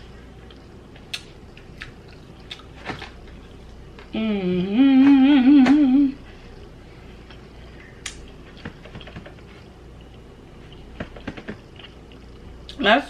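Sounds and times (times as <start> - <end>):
woman humming: 4.1 - 6.3.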